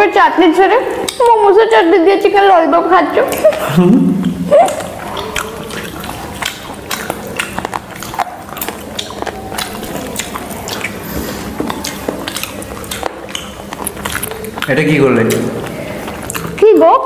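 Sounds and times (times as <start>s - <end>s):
person chewing and biting: 3.3s - 16.7s.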